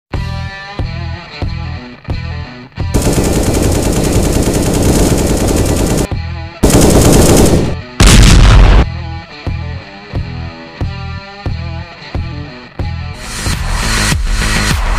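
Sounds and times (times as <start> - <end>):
music: 0.1 - 14.9
rapid automatic gunfire: 3.0 - 8.0.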